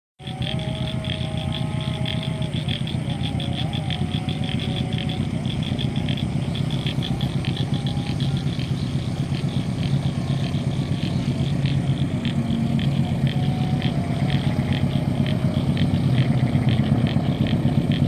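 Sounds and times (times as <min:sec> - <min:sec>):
locomotive diesel engine droning: 0:00.2 - 0:18.0
rapid high ticking: 0:00.2 - 0:18.0.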